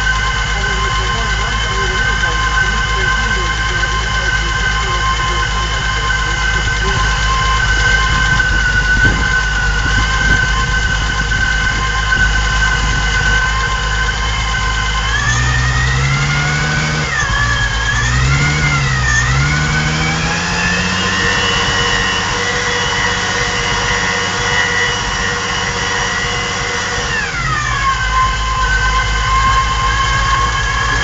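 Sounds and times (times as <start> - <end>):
car engine revving: 0.0 - 31.0
supercharger whine: 0.0 - 31.0.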